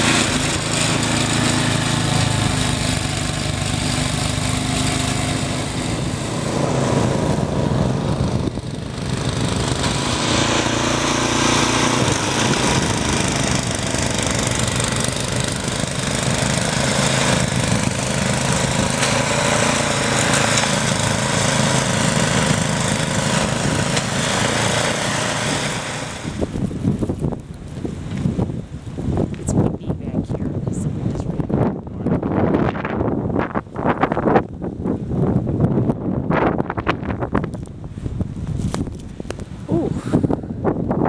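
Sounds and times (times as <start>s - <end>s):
snowblower engine running: 0.0s - 29.4s.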